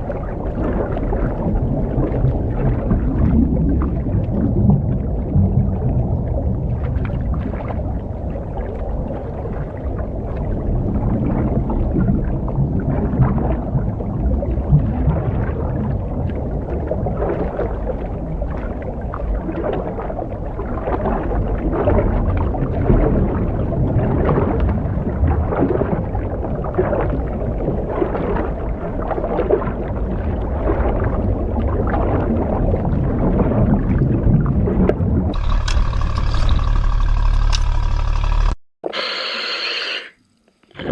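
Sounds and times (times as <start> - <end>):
gurgling bubbles: 0.0 - 35.6, 38.9 - 40.9
underwater breathing rumble: 35.4 - 40.9
sharp hiss with steady tones: 38.9 - 40.7.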